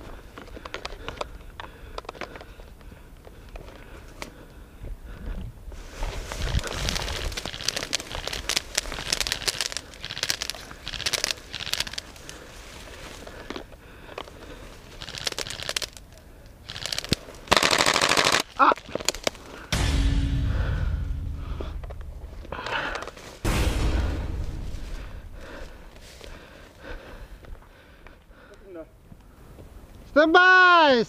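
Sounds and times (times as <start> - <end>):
airsoft guns firing: 17.5 - 18.4
loud rushing noise: 19.8 - 26.0.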